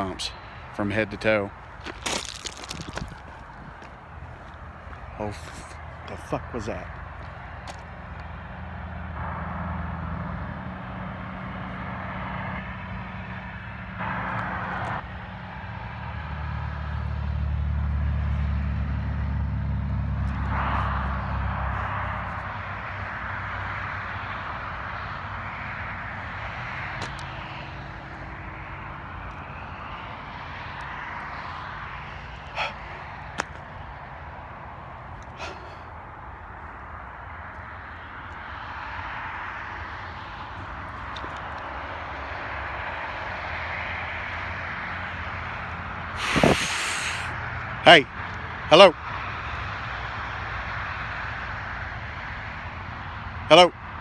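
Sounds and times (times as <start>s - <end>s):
motor vehicle passing: 0.0s - 47.8s.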